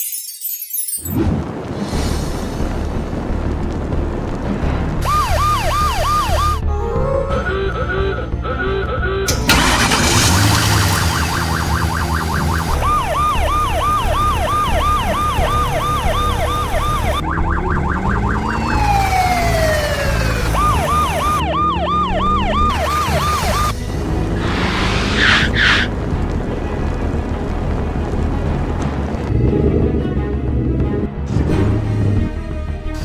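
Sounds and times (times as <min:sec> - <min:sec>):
cartoon siren wailing: 0:05.0 - 0:06.6, 0:09.5 - 0:23.8.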